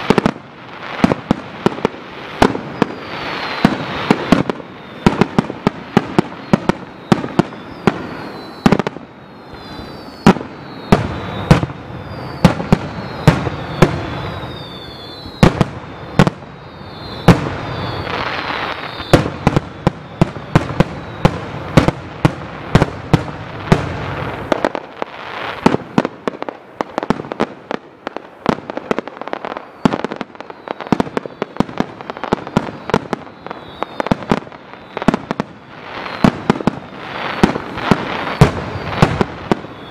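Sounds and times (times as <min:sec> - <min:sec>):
fireworks bangs: 0:00.0 - 0:39.9
falling whistles: 0:02.3 - 0:21.9, 0:29.3 - 0:39.9.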